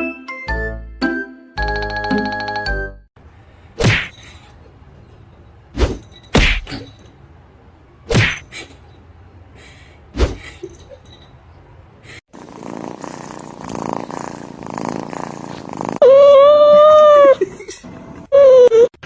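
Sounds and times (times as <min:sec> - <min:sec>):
low background hum: 0:03.2 - 0:12.2.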